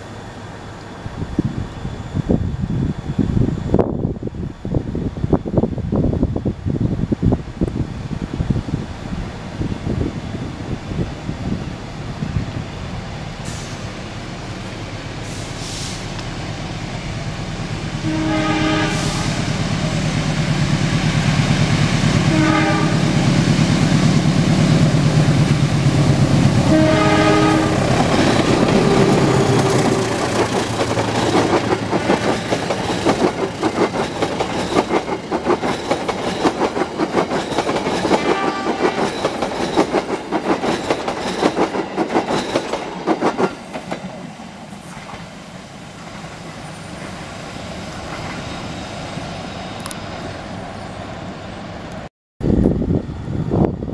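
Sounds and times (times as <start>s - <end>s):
diesel locomotive engine: 0.0s - 53.9s
train horn: 18.0s - 19.5s, 22.1s - 23.2s, 26.5s - 30.1s, 38.2s - 39.1s
wheels clacking over rail joints: 24.1s - 44.4s.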